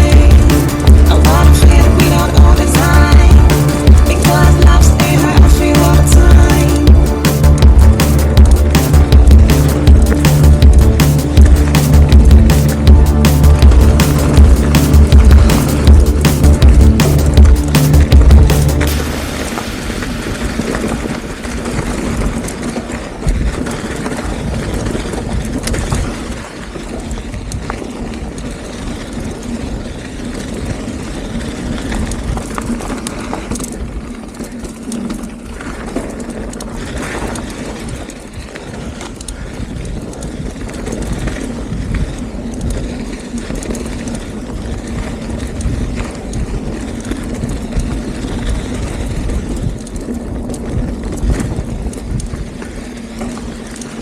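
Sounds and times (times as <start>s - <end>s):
tyres rumbling over ground: 0.0s - 26.0s
wind buffeting microphone: 0.0s - 54.0s.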